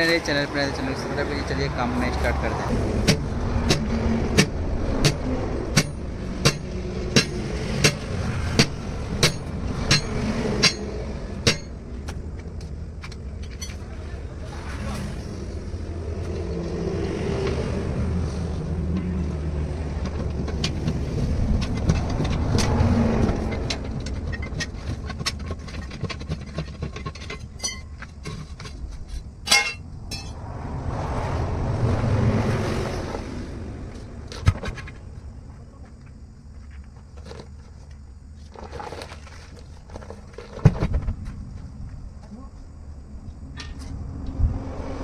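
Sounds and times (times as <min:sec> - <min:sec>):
vehicles passing on road: 0:00.0 - 0:27.4, 0:28.0 - 0:38.3, 0:41.2 - 0:45.0
metallic clinks and knocks: 0:23.4 - 0:28.8, 0:29.4 - 0:30.4.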